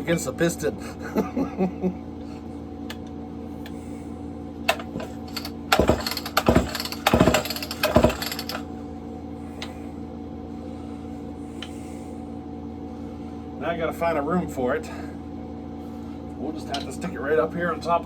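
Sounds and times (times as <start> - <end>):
room hum: 0.0 - 18.0
hard objects clunking and rattling: 4.7 - 8.7.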